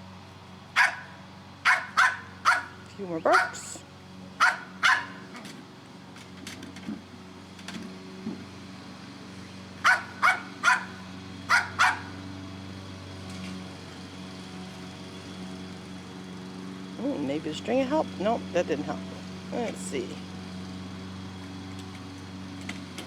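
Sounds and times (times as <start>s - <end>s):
dog barking: 0.8s - 3.7s, 4.4s - 5.2s, 9.8s - 12.2s.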